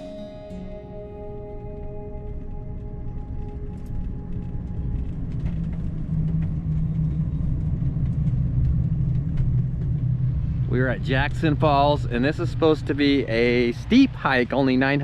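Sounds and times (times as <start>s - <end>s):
background music: 0.0s - 6.6s
vehicle engine and road rumble: 0.0s - 15.0s.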